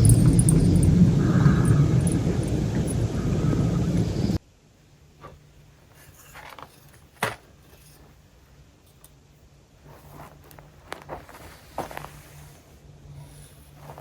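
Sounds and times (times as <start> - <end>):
faint low hum: 0.0 - 14.0
rustling handling noises: 5.2 - 9.2, 9.8 - 14.0.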